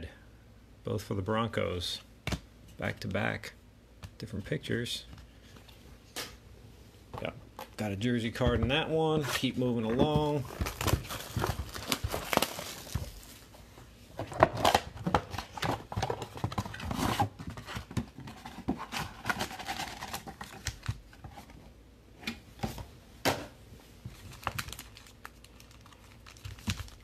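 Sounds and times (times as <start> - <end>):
plastic wrapper tearing and crinkling: 10.4 - 13.3, 24.2 - 27.0.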